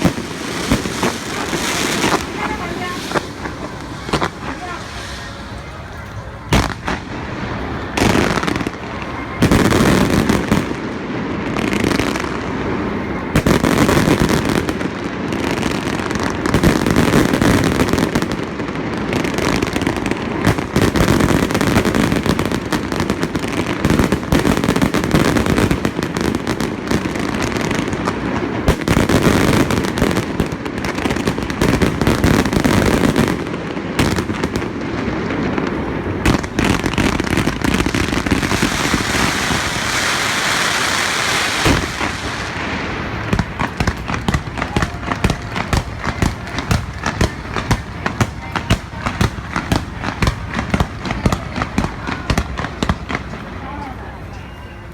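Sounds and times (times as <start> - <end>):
fireworks bursting and crackling: 0.0 - 54.9.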